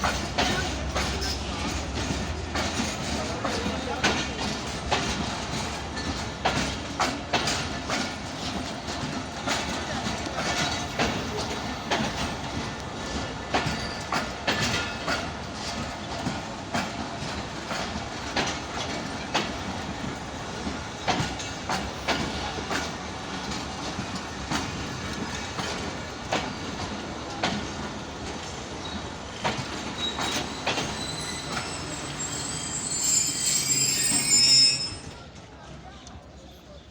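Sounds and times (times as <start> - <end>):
train wheels clacking over rail joints: 0.0 - 36.2
train brake squeal: 10.4 - 15.3, 28.8 - 35.5.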